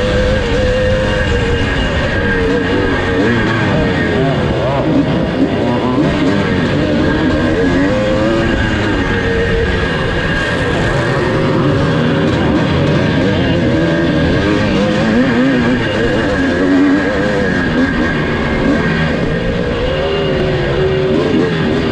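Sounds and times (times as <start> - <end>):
motocross engine revving: 0.0 - 21.9.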